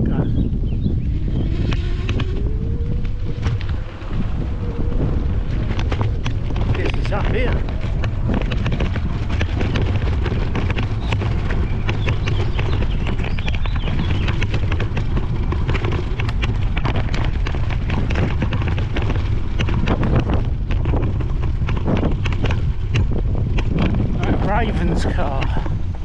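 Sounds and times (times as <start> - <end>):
wind buffeting microphone: 0.0 - 26.0
bike tyres crunching on cinders: 1.1 - 26.0.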